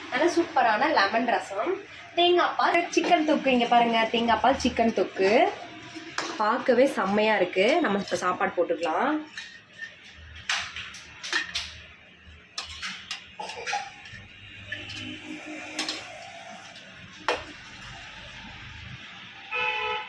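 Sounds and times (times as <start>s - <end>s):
spoon clinking and scraping pots: 2.7s - 18.8s.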